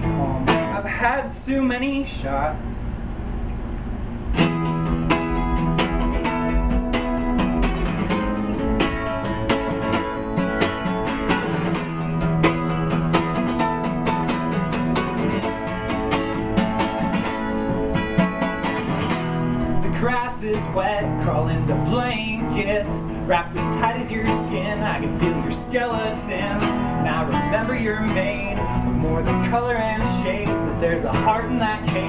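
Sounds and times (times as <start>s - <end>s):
acoustic guitar strumming: 0.0s - 2.3s, 4.2s - 32.0s
person singing: 19.8s - 32.0s.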